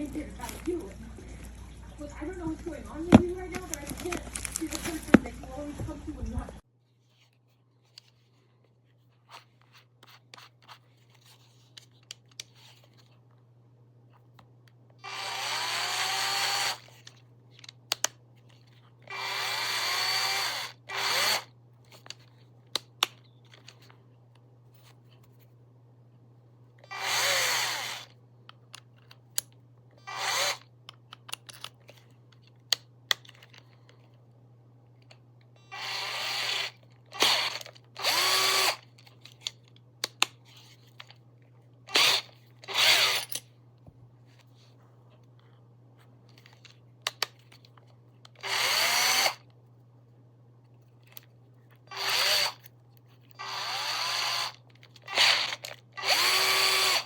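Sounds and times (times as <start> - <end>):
cordless drill motor whining: 15.0 - 17.1, 19.0 - 21.5, 26.8 - 28.2, 30.0 - 30.7, 35.6 - 38.9, 41.9 - 43.4, 48.4 - 49.4, 51.9 - 52.6, 53.4 - 57.0.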